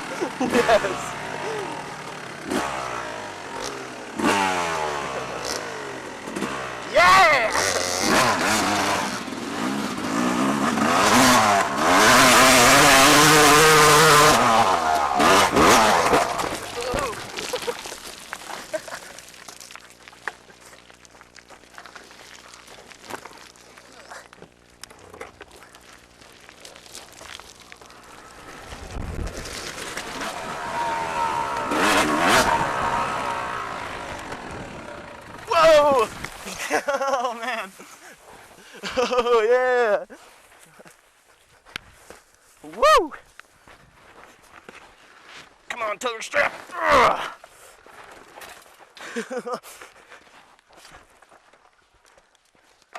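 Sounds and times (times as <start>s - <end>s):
off-road vehicle engine: 0.0s - 39.4s.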